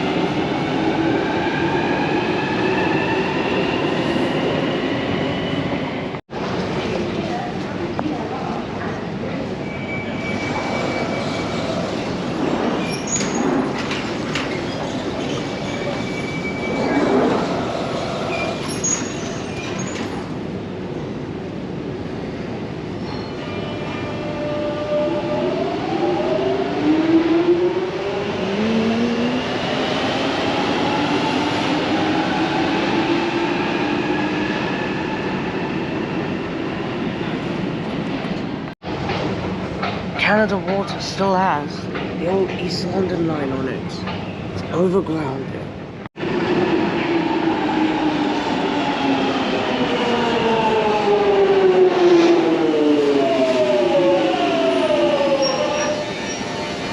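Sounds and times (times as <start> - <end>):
train rail noise with knocks: 10.9 - 20.4, 38.2 - 41.0.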